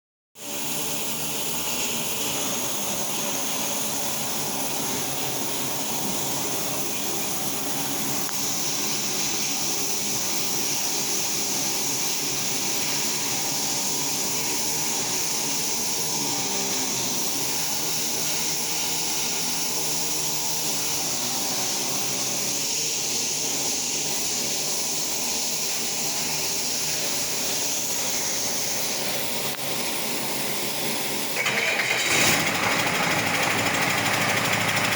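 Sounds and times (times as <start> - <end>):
steady high hiss: 0.4 - 31.4
diesel engine idling: 31.8 - 34.9.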